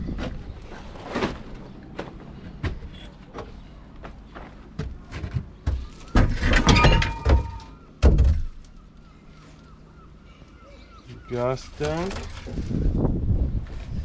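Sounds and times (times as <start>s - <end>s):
scraping: 0.0s - 7.7s.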